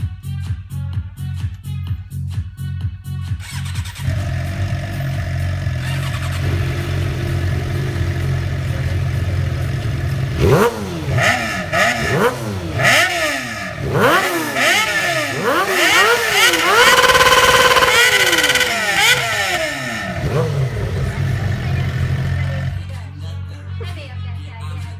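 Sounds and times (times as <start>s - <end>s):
motorcycle engine revving: 3.4s - 23.0s.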